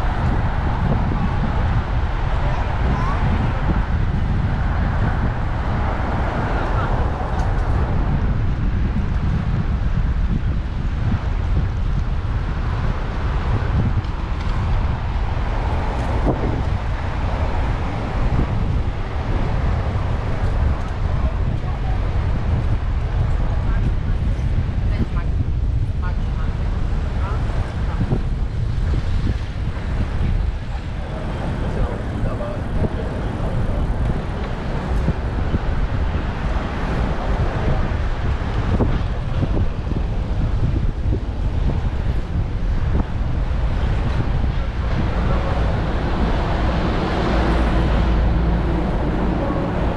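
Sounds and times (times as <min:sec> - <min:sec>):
road noise: 0:00.0 - 0:49.9
wind buffeting microphone: 0:00.0 - 0:49.9.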